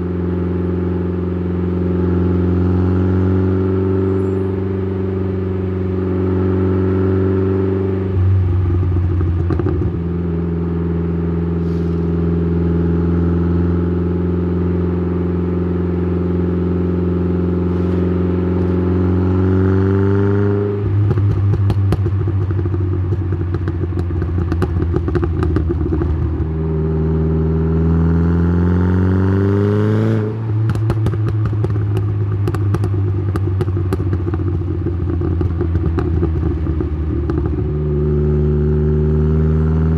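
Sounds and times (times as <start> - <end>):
car engine exhaust revving: 1.6 - 39.9
exhaust crackling: 20.7 - 27.9, 30.2 - 38.4.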